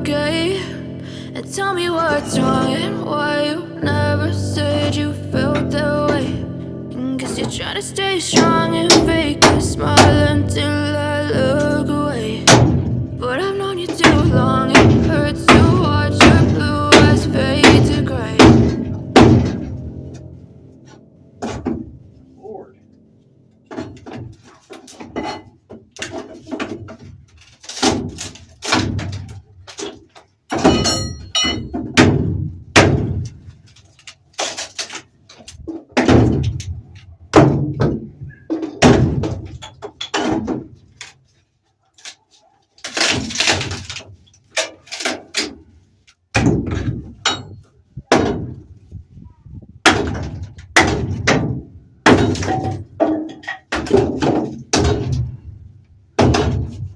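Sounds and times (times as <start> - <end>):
heavy knocks and thuds: 8.4 - 10.4, 12.5 - 13.2, 13.9 - 20.2, 30.5 - 33.6, 35.7 - 40.9, 46.3 - 48.9, 49.8 - 55.6, 56.2 - 56.9.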